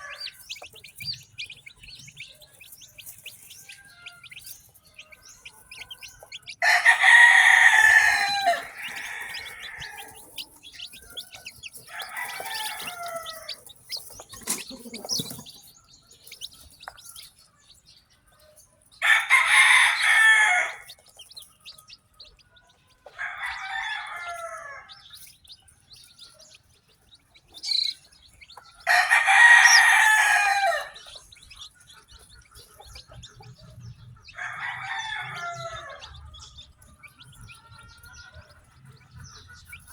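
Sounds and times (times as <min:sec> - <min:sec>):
rooster crowing: 0:00.0 - 0:00.6, 0:05.5 - 0:14.2, 0:19.0 - 0:21.0, 0:23.0 - 0:25.2, 0:28.8 - 0:31.2, 0:34.3 - 0:36.6
chicken calls: 0:00.0 - 0:39.9
chicks peeping: 0:00.0 - 0:39.9.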